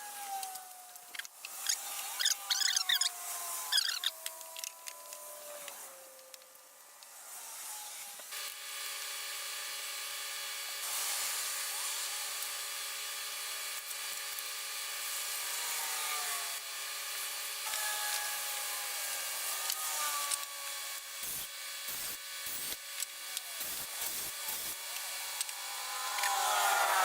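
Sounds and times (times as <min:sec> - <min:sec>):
power drill drilling into wood: 0:15.2 - 0:27.0.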